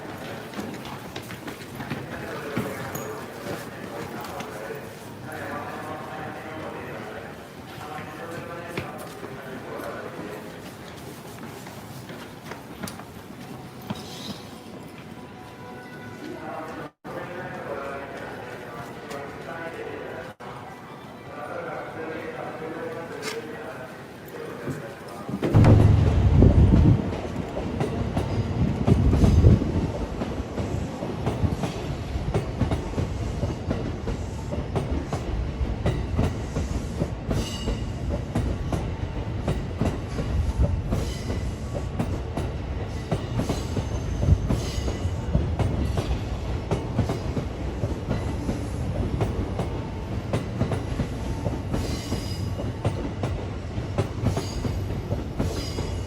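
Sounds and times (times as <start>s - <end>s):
train rumbling: 25.2s - 56.0s.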